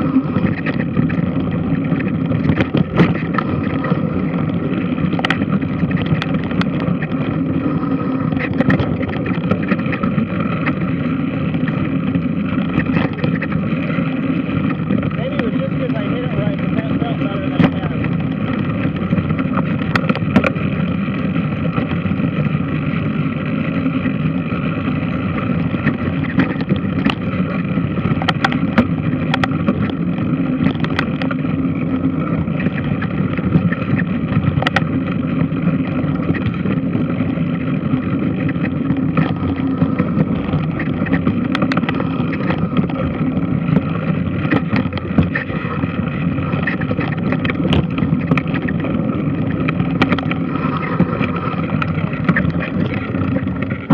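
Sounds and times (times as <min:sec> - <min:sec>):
sharp clicks and knocks: 0:00.2 - 0:07.3, 0:08.2 - 0:10.9, 0:12.5 - 0:13.6, 0:17.5 - 0:20.6, 0:25.6 - 0:27.3, 0:28.0 - 0:31.4, 0:32.6 - 0:35.0, 0:38.3 - 0:53.9.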